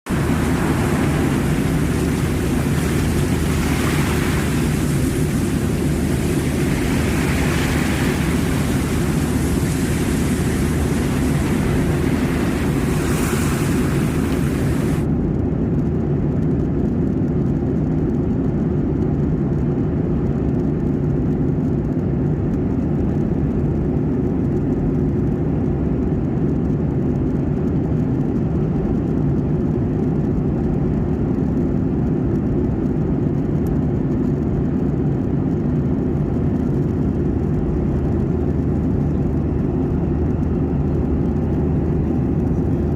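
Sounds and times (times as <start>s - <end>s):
airliner engine rumble: 0.0s - 42.9s
high hiss: 0.1s - 15.0s.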